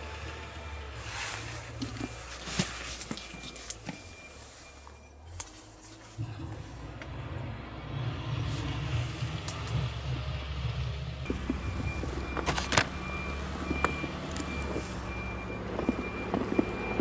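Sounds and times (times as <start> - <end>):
low engine rumble: 0.0 - 17.0
reversing beeper: 3.1 - 9.4, 11.2 - 17.0.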